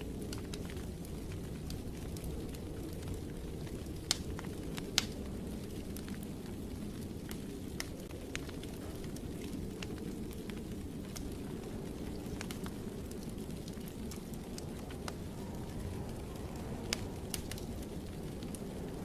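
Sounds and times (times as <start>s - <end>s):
fire crackling and popping: 0.0s - 19.0s
fire rumbling: 0.0s - 19.0s.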